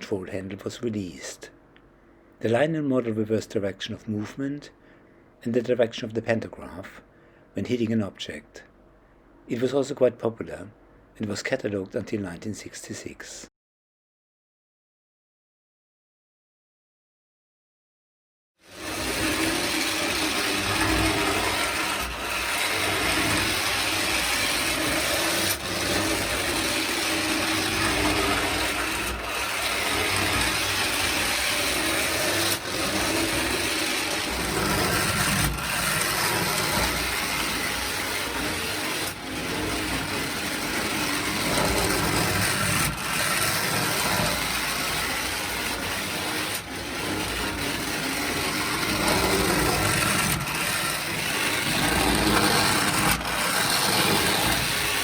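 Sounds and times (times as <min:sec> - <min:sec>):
toy train motor whirring: 0:18.6 - 0:55.0.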